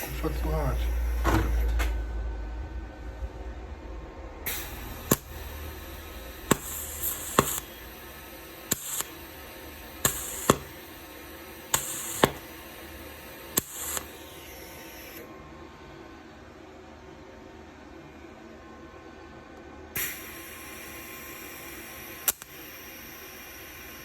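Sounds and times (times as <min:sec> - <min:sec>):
welding machine hiss: 0:00.0 - 0:02.0, 0:04.5 - 0:15.3, 0:20.0 - 0:24.0
welding clicks and crackling: 0:04.9 - 0:05.4, 0:06.5 - 0:07.7, 0:08.7 - 0:09.3, 0:10.0 - 0:10.9, 0:11.7 - 0:12.6, 0:13.5 - 0:14.2, 0:22.2 - 0:22.7.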